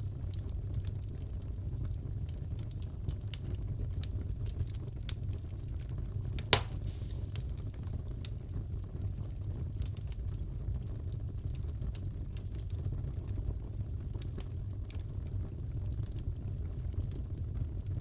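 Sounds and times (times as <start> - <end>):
fire crackling: 0.0 - 18.0
low rumble of fire burning: 0.0 - 18.0
loud pop from fire: 6.4 - 7.8.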